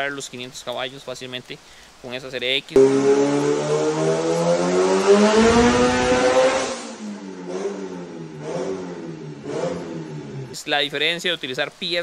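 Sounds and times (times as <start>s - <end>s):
car engine at full throttle: 2.8s - 10.6s.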